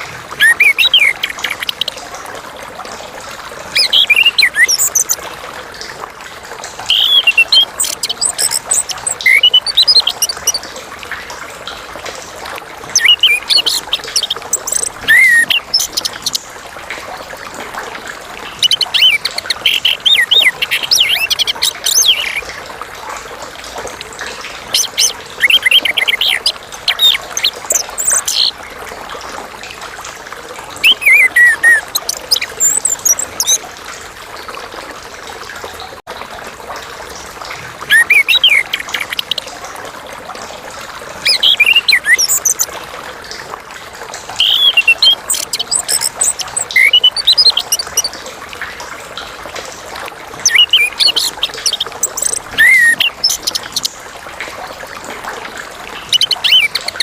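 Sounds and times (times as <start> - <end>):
trickling water hiss: 0.0 - 57.0
thrush singing whistled phrases: 0.3 - 1.9, 3.8 - 5.2, 6.9 - 10.6, 12.9 - 16.4, 18.5 - 22.5, 30.8 - 33.6, 37.9 - 39.4, 41.2 - 42.7, 44.4 - 48.1, 50.4 - 53.9, 56.0 - 57.0.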